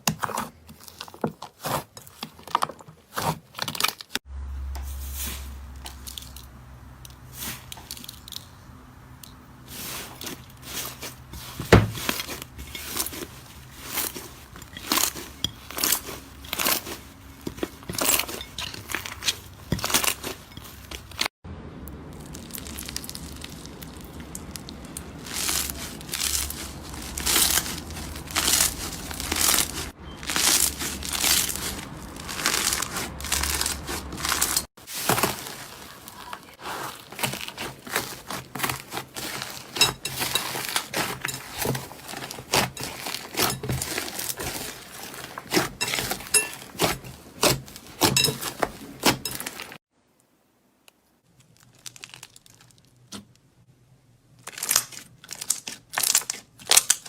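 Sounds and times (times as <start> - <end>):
slime crackling and popping: 18.9 - 49.8, 51.4 - 53.3, 54.4 - 57.0.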